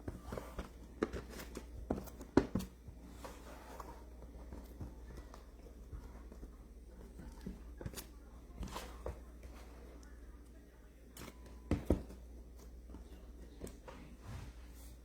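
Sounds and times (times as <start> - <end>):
hands handling cardboard boxes: 0.0 - 9.8
low steady hum: 0.0 - 15.0.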